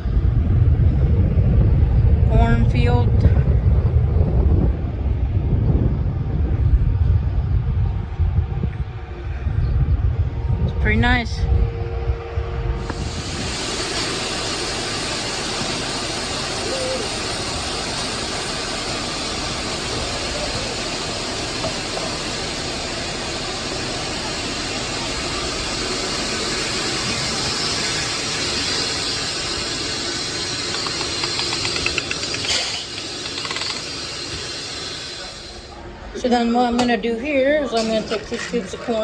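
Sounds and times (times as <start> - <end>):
rushing air hiss: 12.7 - 35.8.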